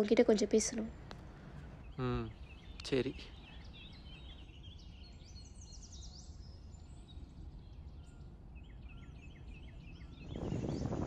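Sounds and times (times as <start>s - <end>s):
outdoor background noise: 0.0s - 11.0s
small birds chirping: 0.0s - 11.0s.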